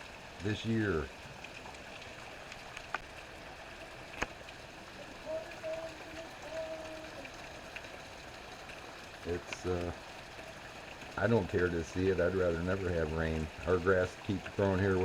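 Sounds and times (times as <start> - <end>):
sharp drips ticking: 0.0 - 15.0
steady rain falling: 0.0 - 15.0.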